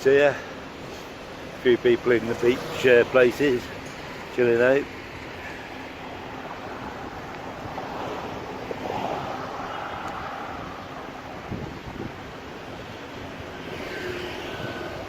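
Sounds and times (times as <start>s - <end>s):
sea waves on shore: 2.1s - 15.0s
wind on microphone: 6.7s - 15.0s.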